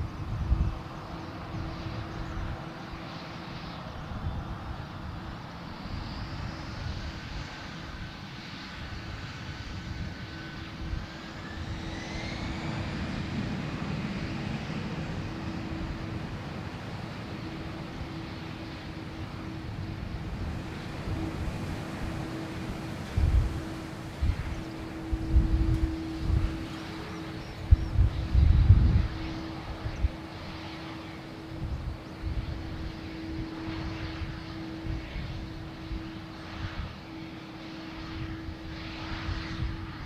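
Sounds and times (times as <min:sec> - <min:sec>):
jet airliner engines: 0:00.0 - 0:40.0
thin engine whine: 0:00.0 - 0:40.0.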